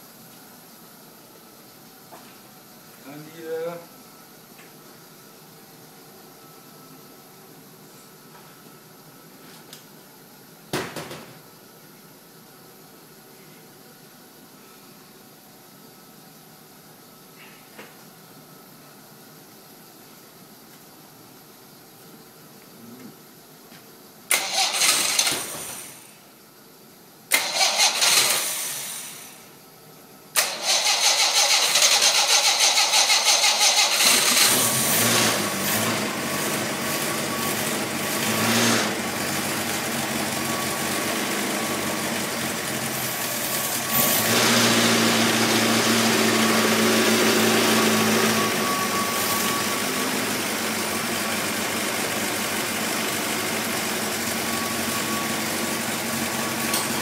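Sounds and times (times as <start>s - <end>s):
engine starting and running: 24.3s - 26.2s, 27.3s - 29.5s, 30.3s - 57.0s.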